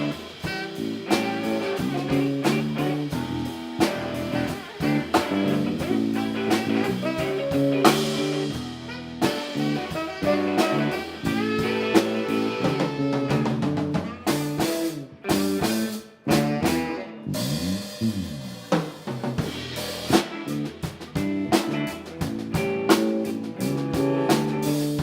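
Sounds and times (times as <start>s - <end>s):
bent guitar notes: 0.0s - 18.7s
drum kit beat: 0.0s - 25.0s
live band instrumental groove: 0.0s - 25.0s.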